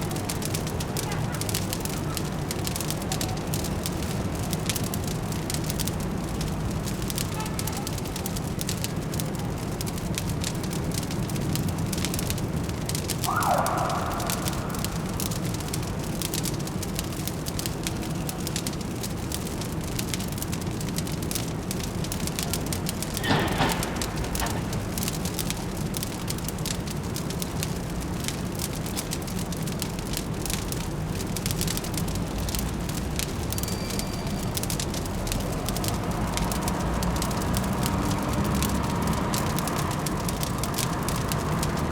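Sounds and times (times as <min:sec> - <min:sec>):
low city hum: 0:00.0 - 0:41.9
wood fire crackling and popping: 0:00.0 - 0:41.9.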